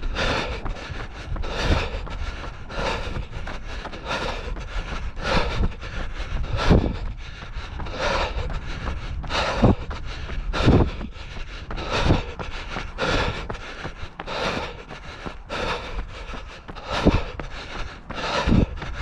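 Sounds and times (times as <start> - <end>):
person breathing hard: 0.0 - 19.0
wind rumble on microphone: 0.0 - 19.0.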